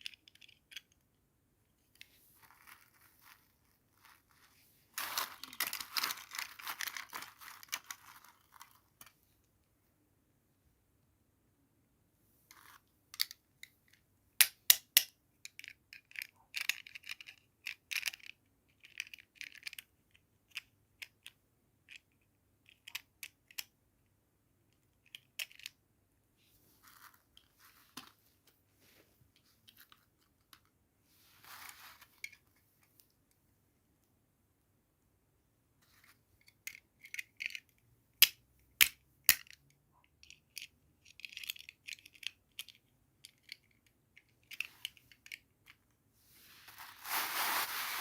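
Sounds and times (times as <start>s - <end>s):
crinkly packaging rustles: 2.1s - 9.1s, 46.3s - 48.0s.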